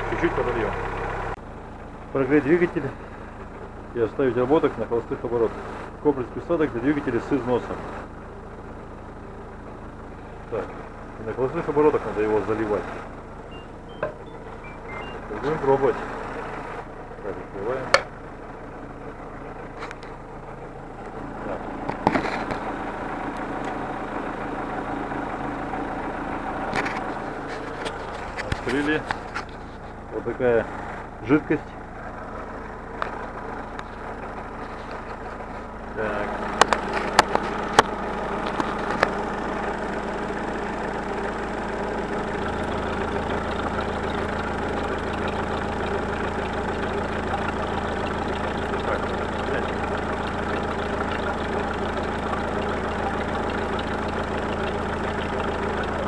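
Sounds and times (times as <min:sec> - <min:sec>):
car engine idling: 0:00.0 - 0:56.0
hydraulic lifters tapping: 0:13.4 - 0:15.8, 0:17.9 - 0:18.2.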